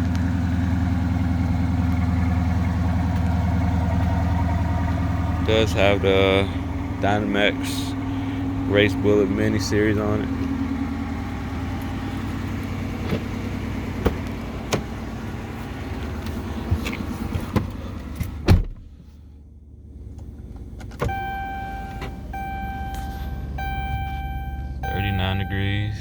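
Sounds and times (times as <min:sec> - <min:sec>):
car engine idling: 0:00.0 - 0:26.0
electronic chime tone: 0:21.1 - 0:26.0.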